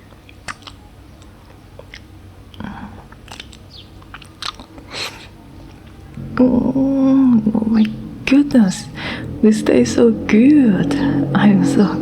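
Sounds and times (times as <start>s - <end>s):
crunchy bites and mouth clicks: 0.0s - 6.0s.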